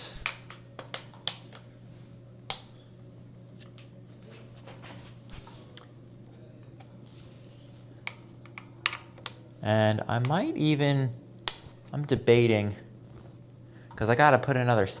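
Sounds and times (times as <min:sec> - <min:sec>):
steady low hum: 0:00.0 - 0:15.0
sharp click: 0:11.5 - 0:11.7.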